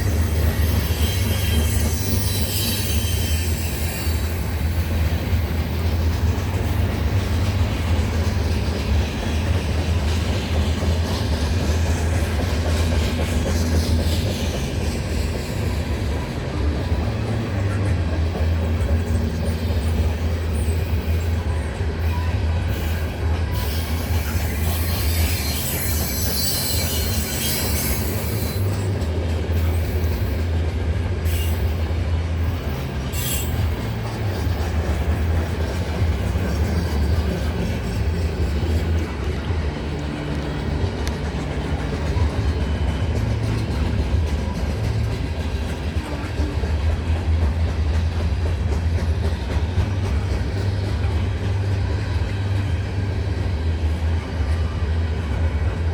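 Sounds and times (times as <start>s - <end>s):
high-pitched wheel squeal: 0.0s - 4.8s, 19.1s - 28.9s, 33.0s - 34.1s
freight train cars rumbling past: 0.0s - 55.9s.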